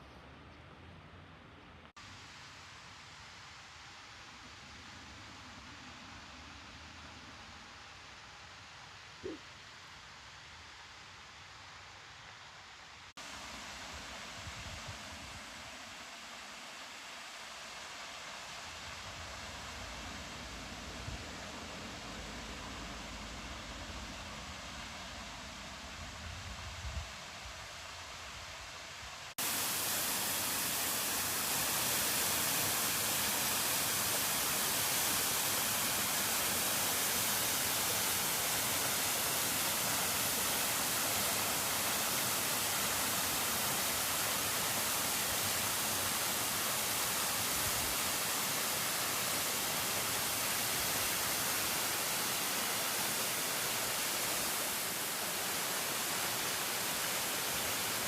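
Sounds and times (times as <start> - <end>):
flowing river water: 29.3 - 58.0.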